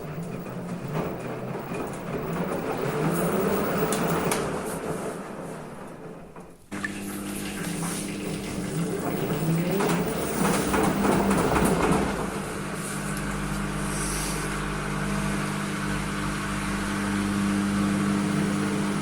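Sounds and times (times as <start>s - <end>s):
washing machine motor hum: 0.0s - 19.0s
water churning in washing machine: 0.0s - 19.0s.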